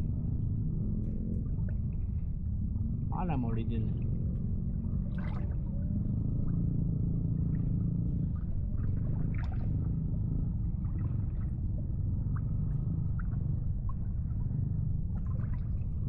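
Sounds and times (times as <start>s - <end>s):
low motor drone: 0.0s - 16.0s.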